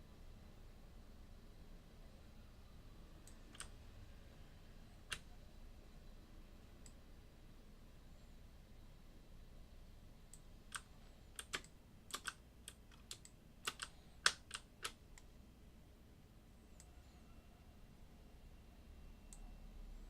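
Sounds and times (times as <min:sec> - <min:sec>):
computer keyboard keystrokes: 0:03.3 - 0:03.7, 0:10.7 - 0:15.3.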